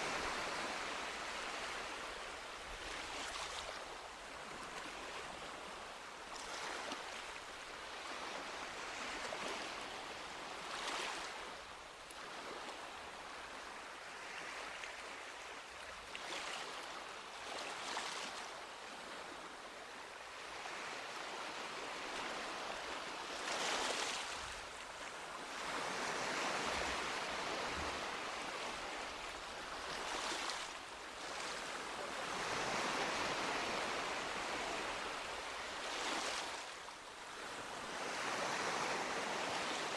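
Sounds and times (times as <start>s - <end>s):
small waves breaking on beach: 0.0s - 39.9s.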